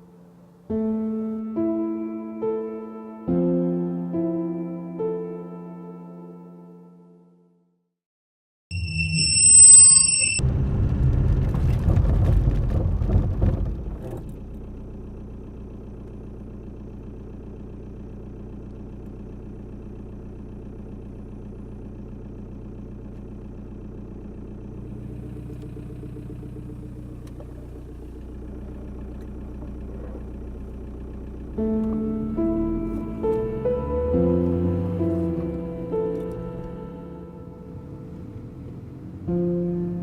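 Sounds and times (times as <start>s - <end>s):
car engine humming: 13.6s - 40.0s.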